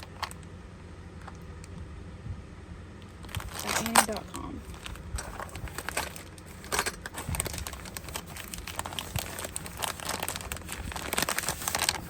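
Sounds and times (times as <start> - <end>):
packaging crinkling: 3.0 - 12.0.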